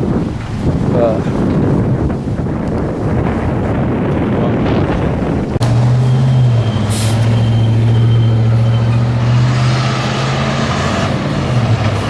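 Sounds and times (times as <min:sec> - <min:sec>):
truck engine running: 0:05.4 - 0:12.0.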